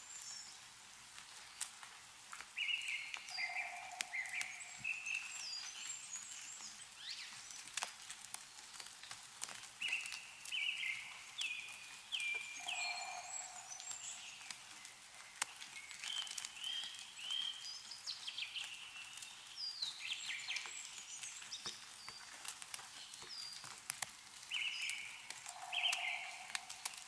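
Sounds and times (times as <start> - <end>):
meltwater dripping: 0.0 - 27.0
songbirds chirping: 0.0 - 27.0
lower bird call: 2.7 - 5.4, 12.2 - 14.9, 24.6 - 27.0.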